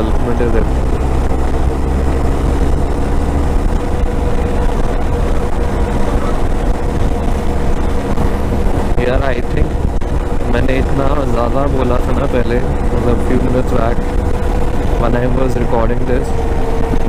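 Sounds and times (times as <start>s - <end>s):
motorcycle engine cruising: 0.0s - 17.0s
wind rumble on microphone: 0.0s - 17.0s.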